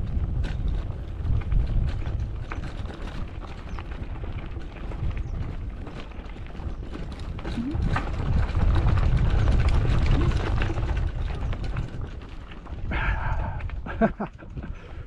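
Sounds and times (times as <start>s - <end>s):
mountain bike rattling on dirt trail: 0.0s - 15.0s
low rumble: 7.5s - 11.0s.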